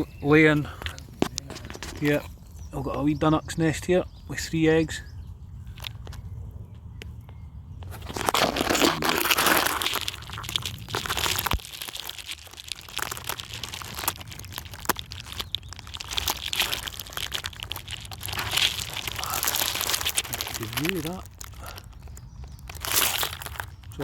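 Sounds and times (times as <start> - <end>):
branches rustling and crackling: 0.0 - 7.2, 7.8 - 24.0
microphone handling noise: 0.7 - 2.7.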